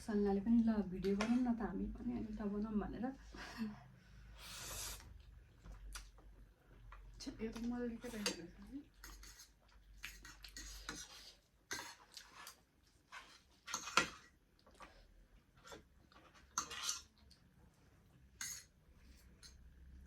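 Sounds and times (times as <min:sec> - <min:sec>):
cutlery scraping and clinking on plate: 0:09.0 - 0:14.3, 0:15.7 - 0:17.1, 0:18.4 - 0:19.6.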